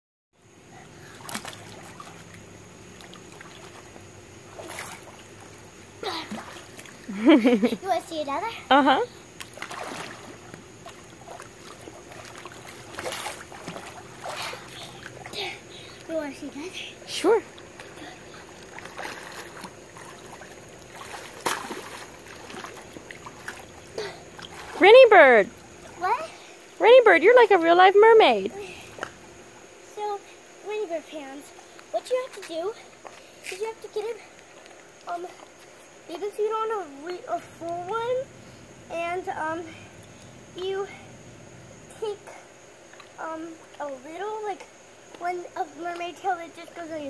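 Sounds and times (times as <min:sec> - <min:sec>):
pool water splashing and lapping: 0:00.4 - 0:47.0
steady low hum: 0:00.4 - 0:47.0
water splash: 0:01.1 - 0:07.3, 0:09.4 - 0:15.4, 0:17.4 - 0:26.0.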